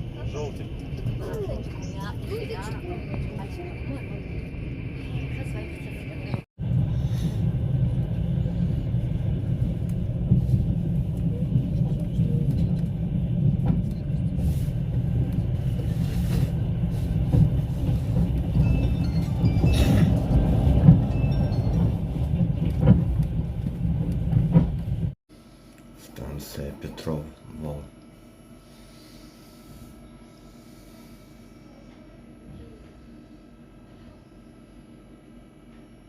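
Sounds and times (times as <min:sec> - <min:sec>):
train wheels rumbling: 0:00.0 - 0:25.2.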